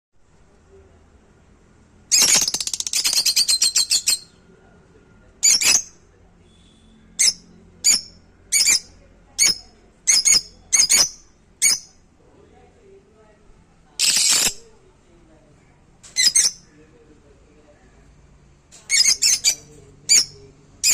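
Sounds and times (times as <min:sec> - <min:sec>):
parrot squawking: 0:02.1 - 0:04.2, 0:16.2 - 0:16.6, 0:18.9 - 0:20.9.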